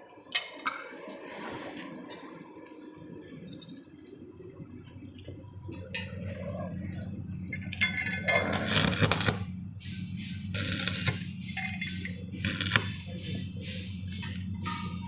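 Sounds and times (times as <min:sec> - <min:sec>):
low electrical hum: 0:01.9 - 0:15.0
metal clinking and scraping: 0:07.5 - 0:09.5, 0:10.6 - 0:15.0.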